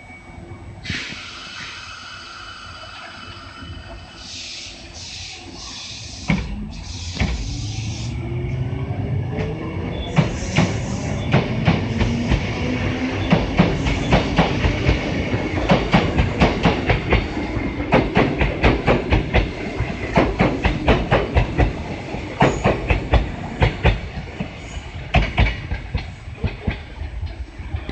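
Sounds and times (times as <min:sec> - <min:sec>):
train wheels clattering over rail joints: 0:15.6 - 0:27.9.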